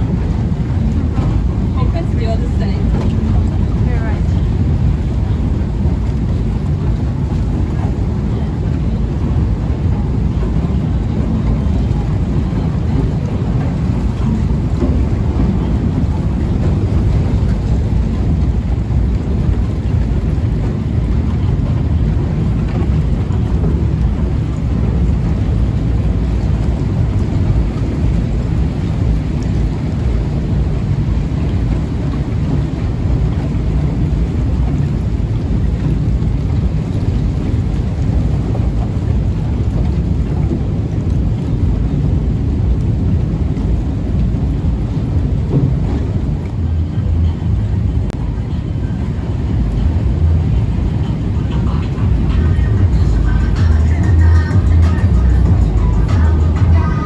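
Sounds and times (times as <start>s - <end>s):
boat engine running: 0.0s - 57.0s
wind buffeting microphone: 0.0s - 57.0s.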